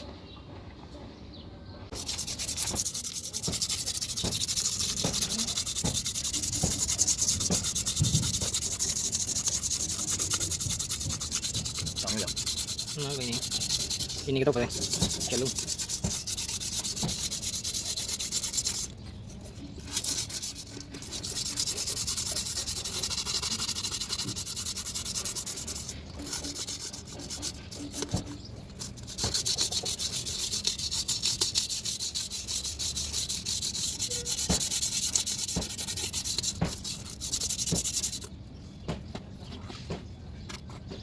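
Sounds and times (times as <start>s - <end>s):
abrasive rubbing strokes: 1.9s - 38.3s.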